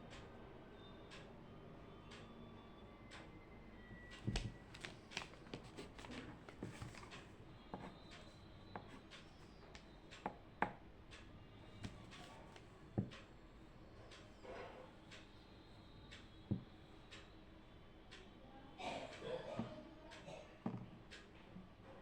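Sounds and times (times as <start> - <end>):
light taps and clicks at desk: 3.9 - 10.8, 11.8 - 13.3, 16.5 - 16.7.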